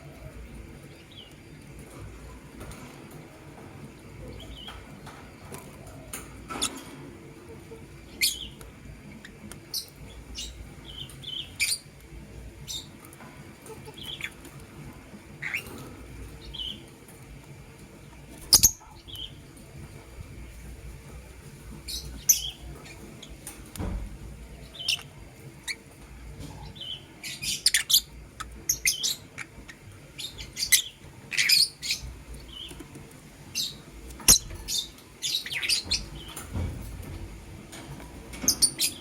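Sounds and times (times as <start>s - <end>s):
lovebirds high chirps: 7.7s - 12.0s, 13.6s - 14.4s, 15.4s - 16.9s, 18.4s - 19.4s, 21.8s - 23.4s, 24.6s - 25.9s, 26.6s - 32.8s, 33.5s - 36.6s.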